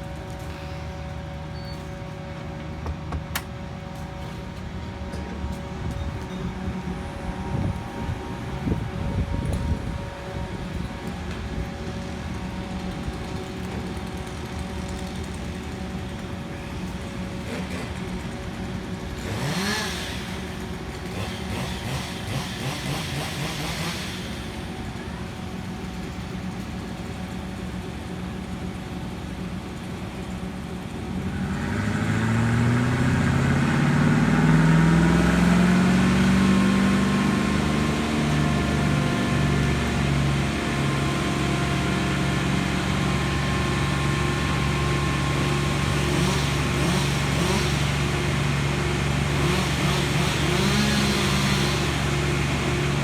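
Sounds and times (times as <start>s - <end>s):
large engine running and revving: 0.0s - 53.0s.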